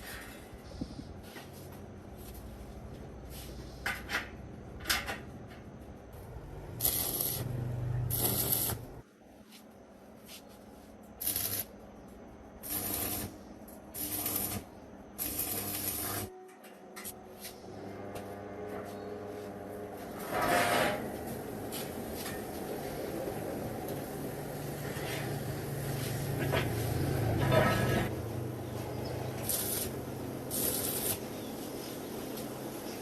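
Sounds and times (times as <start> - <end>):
short hissing bursts: 29.4 - 32.0.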